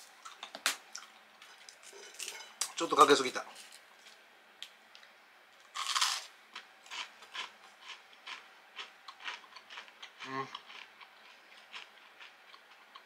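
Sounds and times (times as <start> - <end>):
crunchy chewing of fried food: 5.7 - 13.0
loud bite crunch: 5.8 - 6.3.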